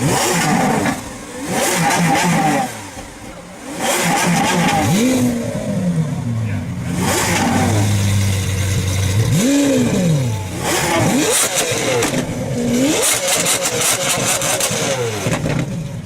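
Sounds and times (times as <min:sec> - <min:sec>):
car engine revving: 0:00.0 - 0:16.0
exhaust crackles and pops: 0:10.7 - 0:16.0.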